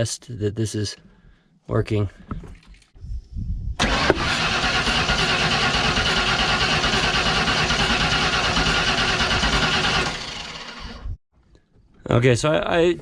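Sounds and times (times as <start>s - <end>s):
engine cranking without starting: 3.8s - 11.2s.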